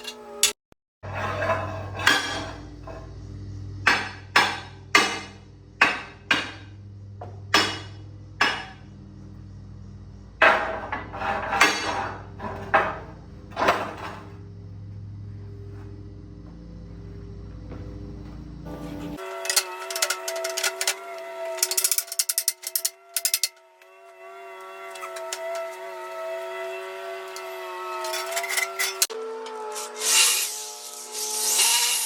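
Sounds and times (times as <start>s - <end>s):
low hum: 1.1s - 32.0s
hammer striking steel plate: 3.8s - 6.7s, 7.5s - 8.8s.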